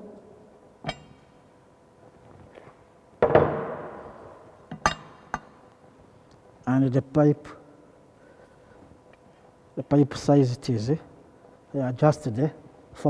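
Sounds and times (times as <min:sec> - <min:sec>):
heavy steel parts clanking: 0:00.8 - 0:01.4, 0:04.7 - 0:05.5.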